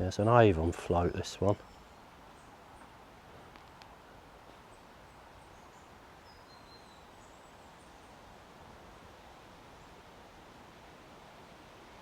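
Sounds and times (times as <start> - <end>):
faint background hiss: 0.0 - 12.0
soft ticks: 3.5 - 3.9.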